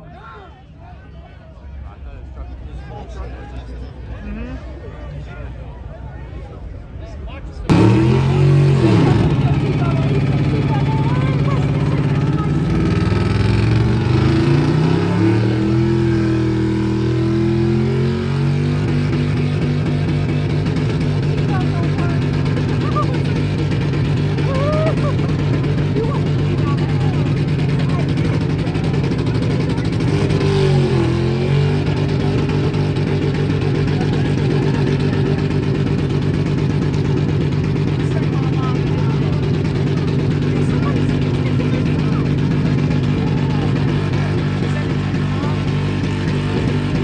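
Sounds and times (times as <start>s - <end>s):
vehicle engine revving: 7.7s - 47.0s.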